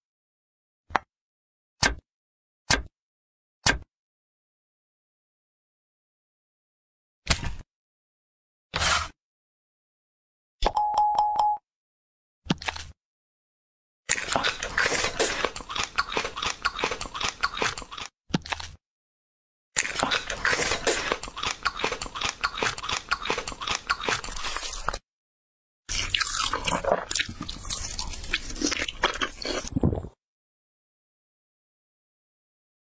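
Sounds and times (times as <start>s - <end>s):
crunching and chewing: 14.1s - 18.8s, 19.8s - 25.0s, 25.9s - 29.8s.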